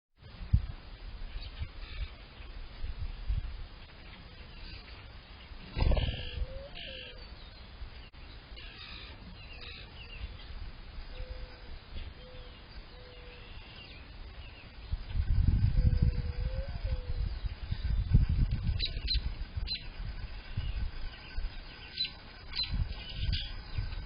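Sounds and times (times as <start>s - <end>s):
wind rumble on microphone: 0.2s - 8.1s, 10.0s - 24.0s
small songbirds chirping: 0.3s - 24.0s
mourning dove cooing: 5.8s - 7.2s, 11.0s - 13.8s, 15.8s - 17.2s.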